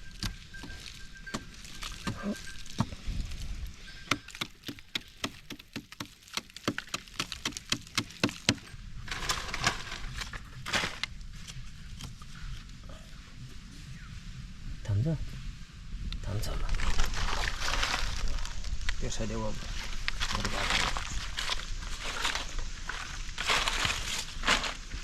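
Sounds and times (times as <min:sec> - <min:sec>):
sharp chopping strikes: 0:04.1 - 0:08.6
scraping and rustling: 0:08.6 - 0:11.6, 0:19.5 - 0:25.0.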